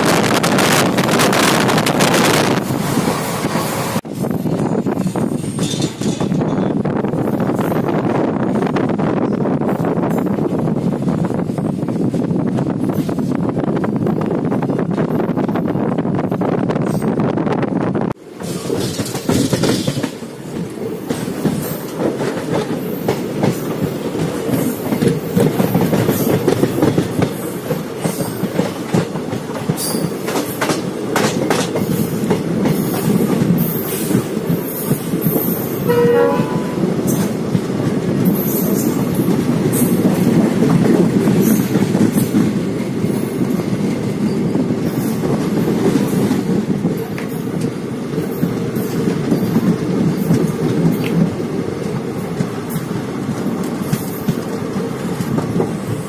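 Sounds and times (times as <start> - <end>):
train rumbling on track: 0.0 - 56.0
wheels clicking over rail joints: 4.1 - 7.8, 18.3 - 35.8, 36.9 - 56.0
train horn: 35.8 - 37.0.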